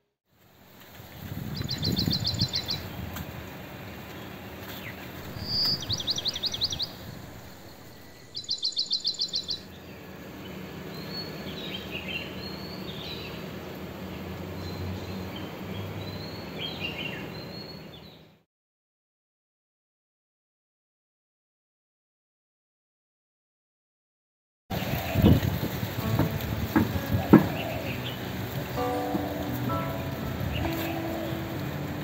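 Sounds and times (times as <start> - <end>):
outdoor background noise: 0.3 - 18.4, 24.7 - 32.0
songbird singing: 1.0 - 3.2, 4.0 - 18.3, 24.8 - 32.0.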